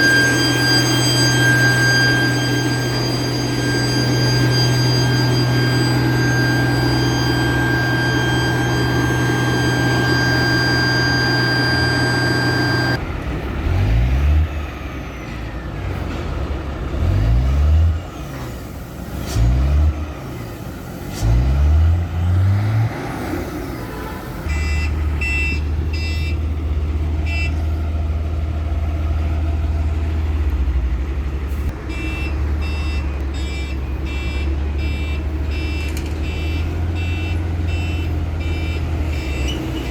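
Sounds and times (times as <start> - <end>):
high whine: 0.0 - 13.0
short electronic beeps: 0.0 - 13.0, 24.5 - 26.4, 31.9 - 39.9
diesel engine revving and idling: 0.0 - 39.9.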